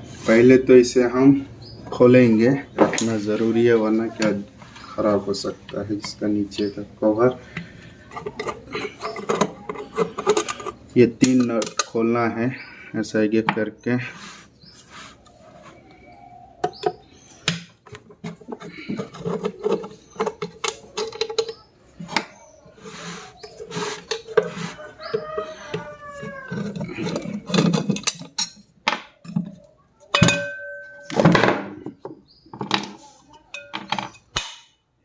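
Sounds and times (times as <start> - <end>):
metal tools clinking and knocking: 7.5 - 12.0, 17.8 - 22.4, 23.4 - 34.5
short metallic ringing tones: 30.2 - 31.1.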